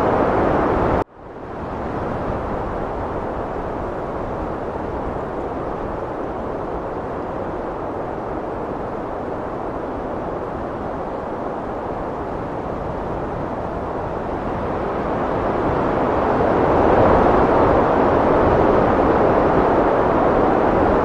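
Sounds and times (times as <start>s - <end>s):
heavy wind rushing: 0.0s - 21.0s.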